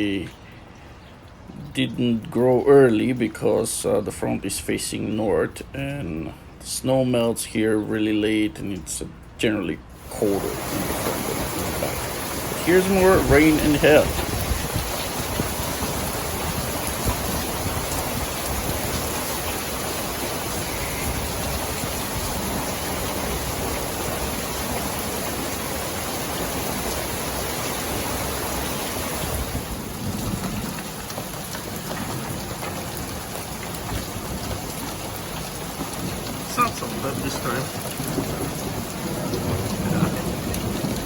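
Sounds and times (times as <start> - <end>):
heavy rain and hail: 10.0 - 41.0.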